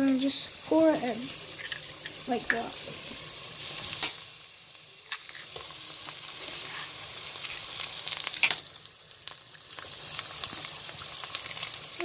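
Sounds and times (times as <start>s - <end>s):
food sizzling in hot fat: 0.0s - 12.0s
eggs cracking: 1.5s - 3.0s.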